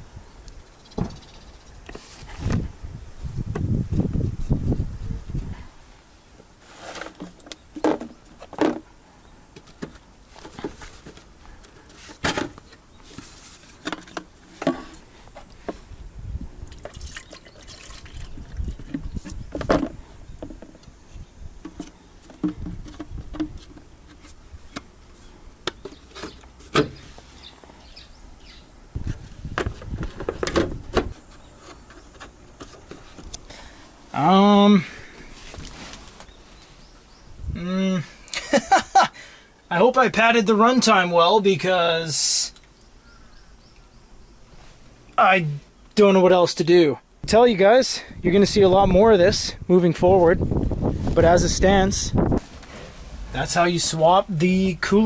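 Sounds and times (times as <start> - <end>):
hands working on plastic and metal: 29.0 - 33.6.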